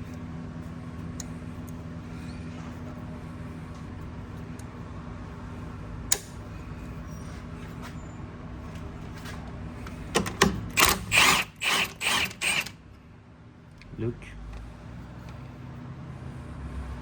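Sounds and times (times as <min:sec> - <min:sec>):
steady low hum: 0:00.0 - 0:17.0
ratchet wrench ratcheting: 0:10.7 - 0:12.8.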